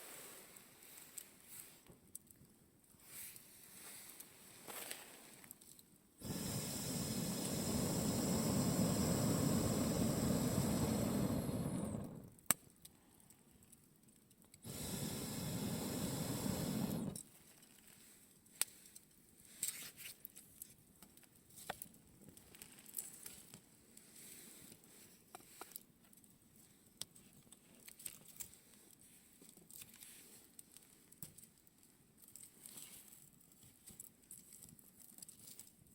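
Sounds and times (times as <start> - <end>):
pressurised jet hissing: 6.2 - 12.3, 14.6 - 17.2
fire crackling and popping: 6.2 - 12.7, 14.2 - 17.2.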